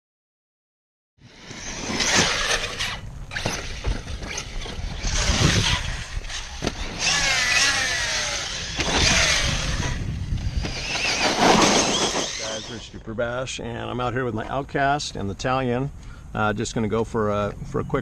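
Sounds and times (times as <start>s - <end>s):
electric motor whining: 1.2s - 13.0s
tyres rushing over dirt: 1.5s - 13.0s.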